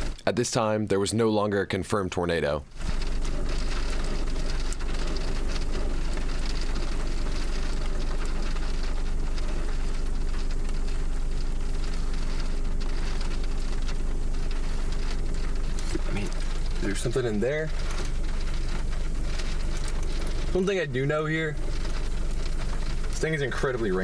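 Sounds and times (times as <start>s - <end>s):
rain hitting a car: 0.0s - 1.0s, 2.4s - 24.0s.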